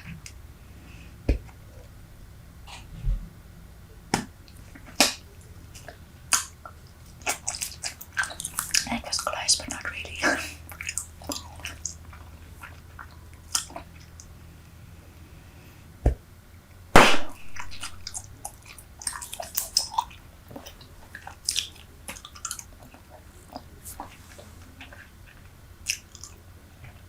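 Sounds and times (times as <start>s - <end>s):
gum chewing clicks and smacks: 4.2s - 14.4s, 17.4s - 27.0s
bubble gum pop: 17.0s - 17.9s.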